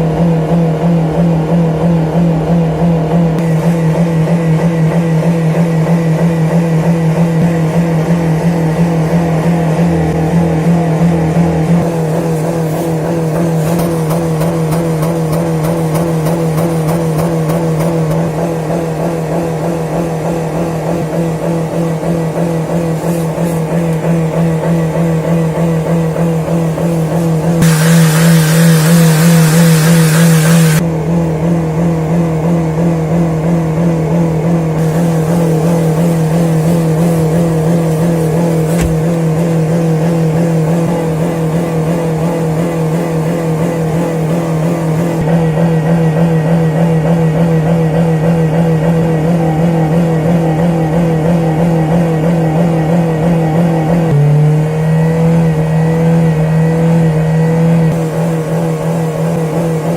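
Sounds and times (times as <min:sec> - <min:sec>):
vehicle engine revving: 0:00.0 - 0:59.9
hiss: 0:20.0 - 0:25.2, 0:26.0 - 0:30.8, 0:34.8 - 0:41.5.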